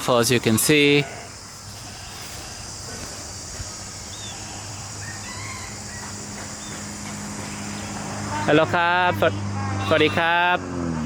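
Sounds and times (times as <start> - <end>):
even hiss: 0.0 - 10.6.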